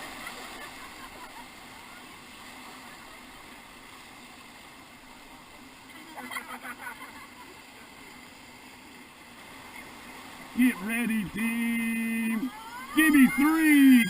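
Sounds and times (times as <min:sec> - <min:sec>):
whitewater river rushing: 0:00.0 - 0:14.0
burst of voices: 0:10.6 - 0:14.0.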